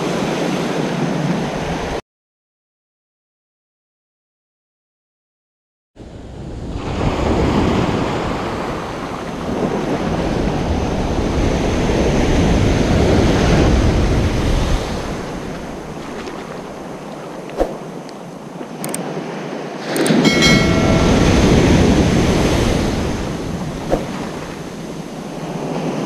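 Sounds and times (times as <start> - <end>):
ocean surf washing onto beach: 6.2 - 26.0.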